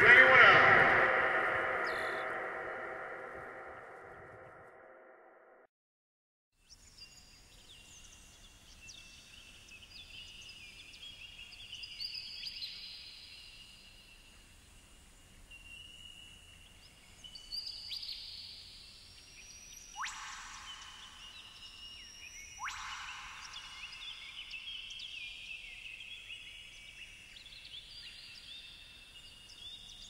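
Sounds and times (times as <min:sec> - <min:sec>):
birds chirping and calling: 0:00.0 - 0:03.9, 0:20.0 - 0:26.9
faint outdoor hiss: 0:06.6 - 0:30.0.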